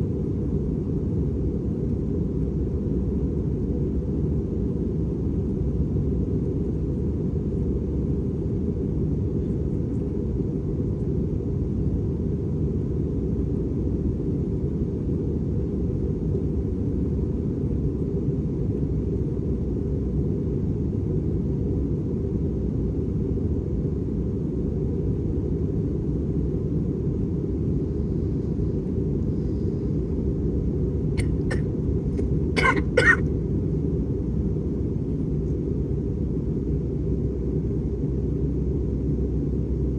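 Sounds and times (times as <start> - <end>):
airplane cabin rumble: 0.0 - 39.9
person coughing: 31.2 - 31.7, 32.6 - 33.3.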